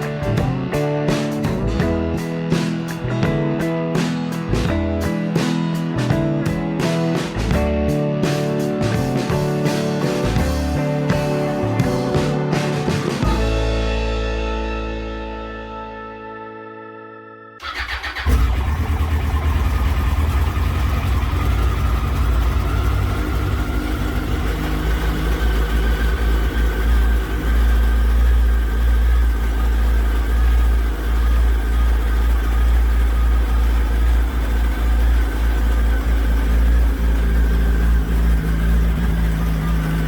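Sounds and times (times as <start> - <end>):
motorcycle engine idling: 17.6 - 40.0.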